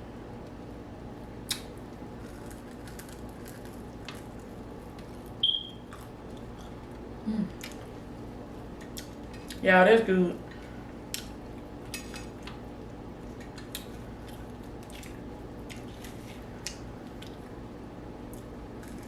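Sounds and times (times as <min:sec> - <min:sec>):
steady low hum: 0:00.0 - 0:19.0
soft wet chewing: 0:01.5 - 0:08.1, 0:08.8 - 0:09.6, 0:11.1 - 0:17.6.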